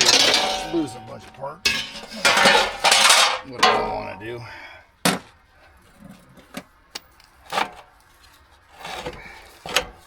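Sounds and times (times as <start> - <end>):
clinks of hand tools and metal: 0.0 - 4.3
metal scrape: 0.0 - 4.3.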